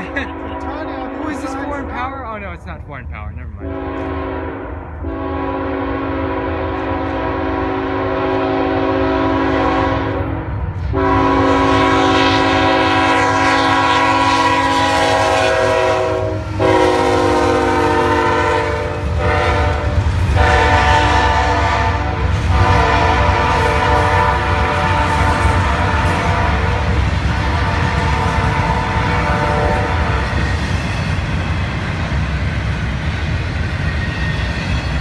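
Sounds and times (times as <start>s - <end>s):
locomotive air horn blasts: 3.6s - 30.5s.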